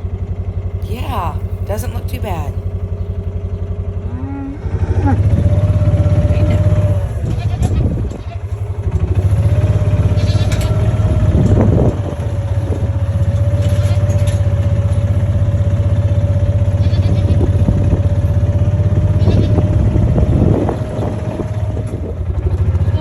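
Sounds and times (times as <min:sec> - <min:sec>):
constant engine whine: 0:00.0 - 0:23.0
skid steer engine droning: 0:00.0 - 0:23.0.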